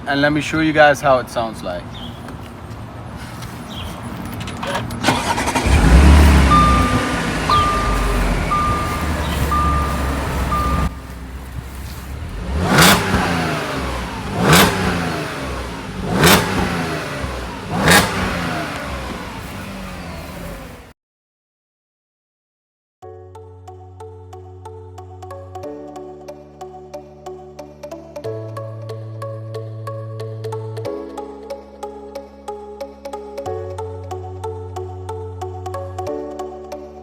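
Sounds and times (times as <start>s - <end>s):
car engine starting and idling: 4.1s - 20.9s
engine revving: 4.6s - 20.9s
repeating beep: 6.4s - 11.0s.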